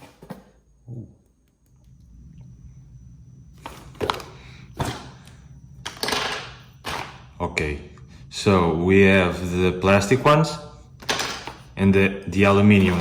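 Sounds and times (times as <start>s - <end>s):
plastic parts clattering: 5.8s - 7.2s, 11.0s - 11.7s.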